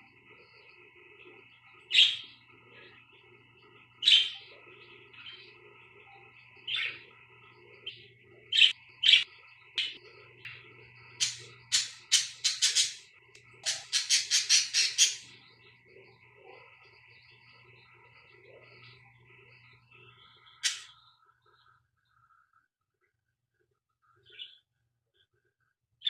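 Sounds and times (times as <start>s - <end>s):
budgerigars chirping: 11.2s - 13.0s, 13.6s - 15.4s.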